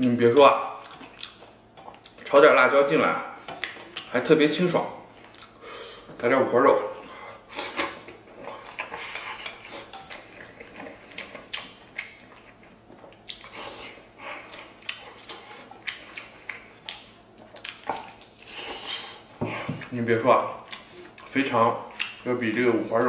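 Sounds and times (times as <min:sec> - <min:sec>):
wet chewing mouth noises: 0:00.7 - 0:02.4, 0:07.3 - 0:22.3.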